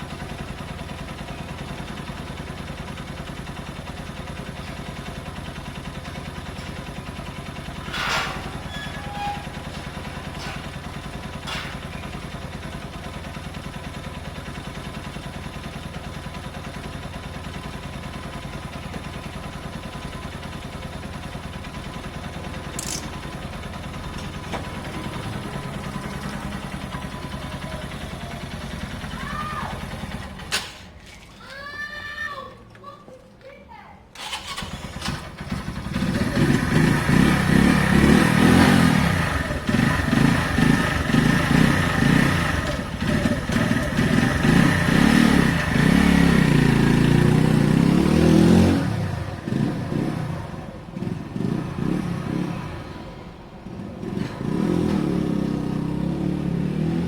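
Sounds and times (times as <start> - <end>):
motorbike engine idling: 0.0 - 31.8, 34.2 - 57.0
short clicks and knocks: 22.8 - 23.2.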